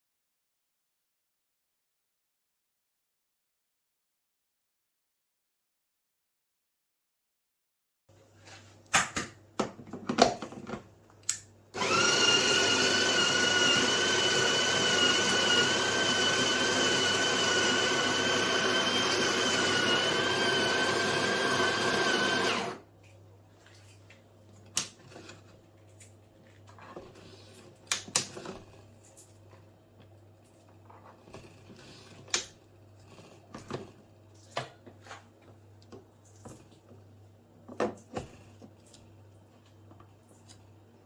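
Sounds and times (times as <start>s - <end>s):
coffee grinder motor whine: 11.8s - 22.8s.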